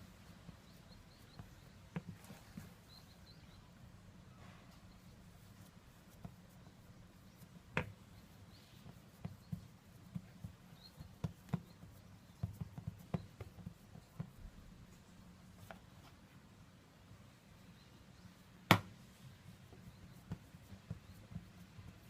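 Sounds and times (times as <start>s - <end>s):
sharp knock: 18.7s - 18.9s.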